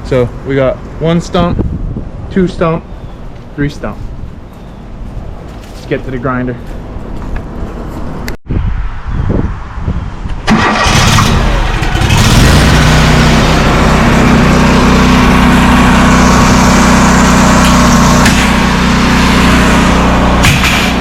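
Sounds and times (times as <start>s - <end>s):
stump grinder engine starting: 10.5s - 21.0s.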